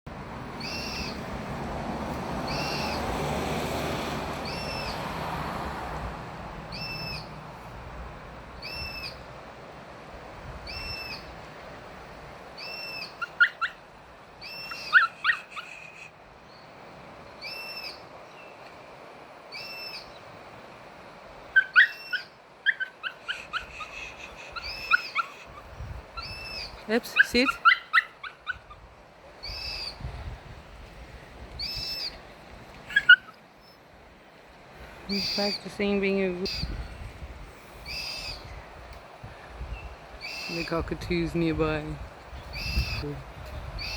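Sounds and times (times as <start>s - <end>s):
cockatoo calling: 12.6s - 16.2s, 21.5s - 30.0s, 32.8s - 33.8s, 35.1s - 35.7s, 42.5s - 43.1s
dog whining: 14.6s - 15.9s, 21.6s - 25.7s, 27.2s - 28.8s, 32.9s - 33.4s.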